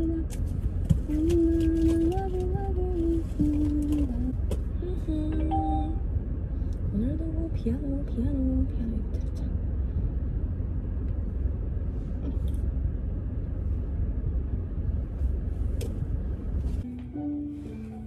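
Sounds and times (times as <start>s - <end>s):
car engine idling rumble: 0.0s - 16.9s
background music held notes: 16.8s - 18.0s.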